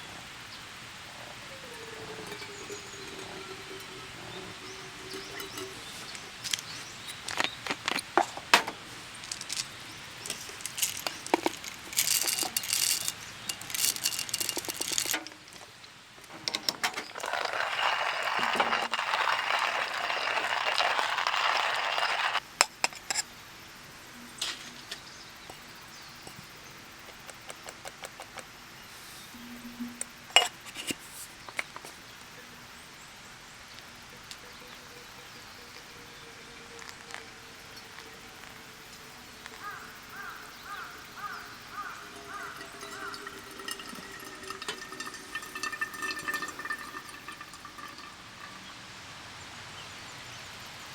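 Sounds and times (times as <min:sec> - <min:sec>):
steady hiss: 0:00.0 - 0:50.9
glassware and dishes clinking: 0:01.2 - 0:08.8, 0:10.1 - 0:15.7, 0:29.4 - 0:31.0, 0:41.6 - 0:48.7.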